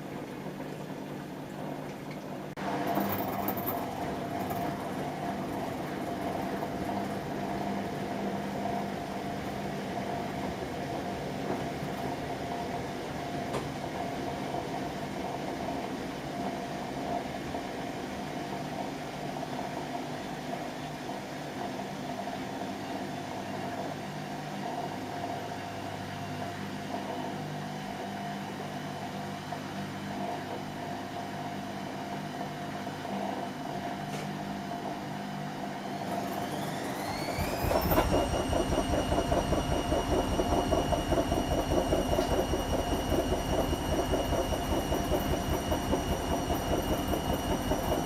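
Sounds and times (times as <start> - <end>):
washing machine motor hum: 0.0 - 48.0.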